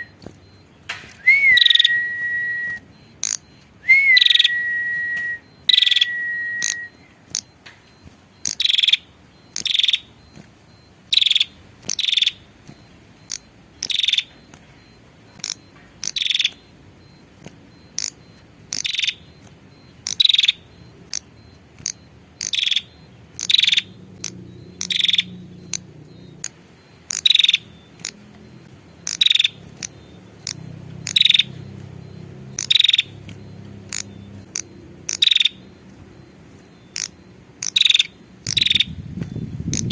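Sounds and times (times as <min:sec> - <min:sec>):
bird chipping call: 0:00.0 - 0:07.6, 0:08.4 - 0:10.2, 0:11.1 - 0:14.6, 0:15.3 - 0:16.7, 0:17.9 - 0:28.4, 0:29.0 - 0:39.9
thin whistled tone: 0:00.0 - 0:08.6.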